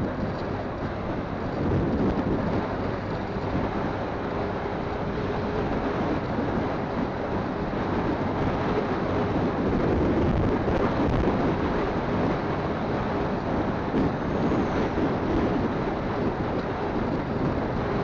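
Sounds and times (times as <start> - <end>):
road noise: 0.0 - 18.0
wind rushing over microphone: 0.0 - 18.0.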